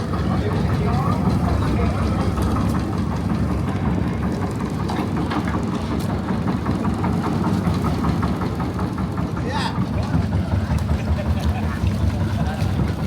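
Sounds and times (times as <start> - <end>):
engine idling with knocking: 0.0 - 13.0.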